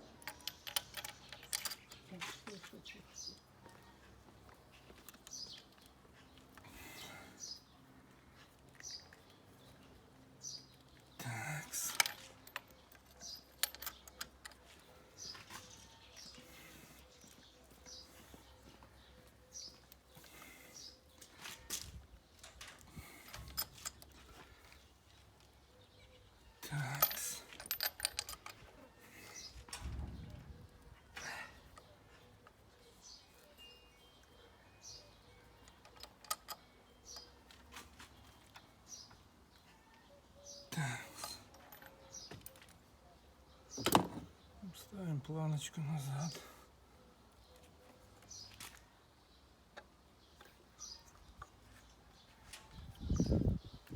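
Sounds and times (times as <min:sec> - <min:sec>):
hand tools clicking and tapping: 0:00.0 - 0:02.6, 0:11.9 - 0:16.3
tools clicking and tapping: 0:00.0 - 0:02.6
bird chirping: 0:28.9 - 0:40.8.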